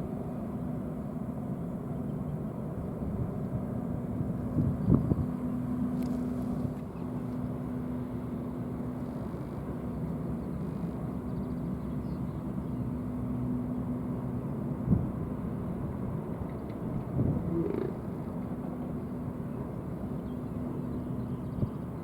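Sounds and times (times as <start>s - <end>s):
ferry engines droning: 0.0s - 22.0s
wind rumble on microphone: 2.7s - 7.6s, 14.8s - 19.3s, 21.0s - 22.0s.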